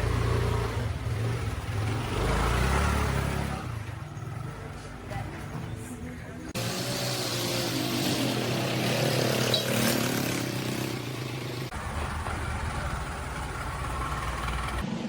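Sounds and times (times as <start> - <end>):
outdoor noise: 0.0 - 15.0
motor engine running: 10.0 - 14.9.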